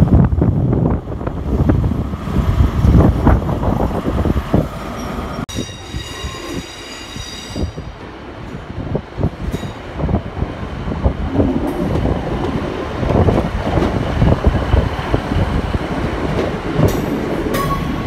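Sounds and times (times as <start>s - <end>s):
diesel train approaching: 0.0s - 18.0s
train rumbling past: 0.0s - 18.0s
high-pitched train squeal: 5.0s - 7.9s.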